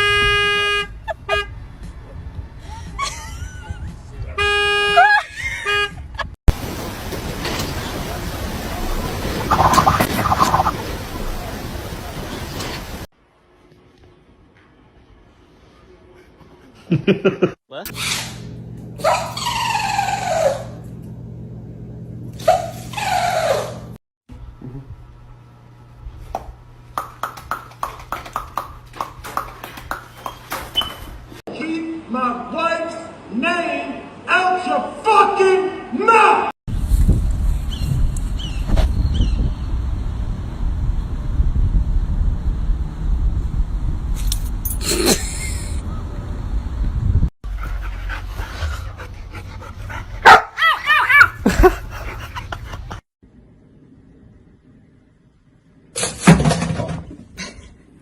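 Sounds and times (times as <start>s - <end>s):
dog barking and yelping: 19.0s - 20.8s, 47.6s - 52.9s.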